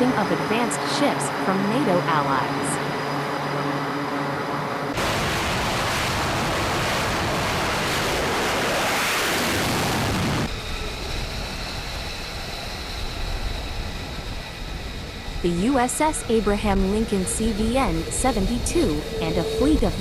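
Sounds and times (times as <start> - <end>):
wind and sea rushing: 3.8 - 20.0.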